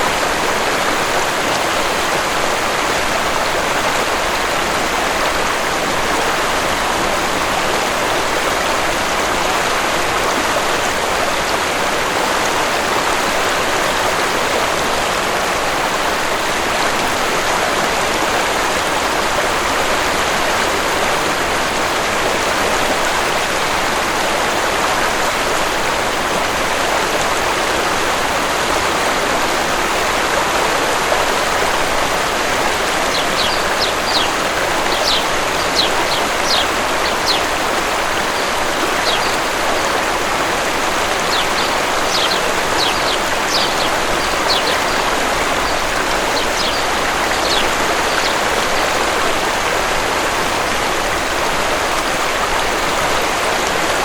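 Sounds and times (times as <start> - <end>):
waterfall rushing: 0.0 - 54.0
bird chirping: 33.1 - 37.5, 41.2 - 48.4.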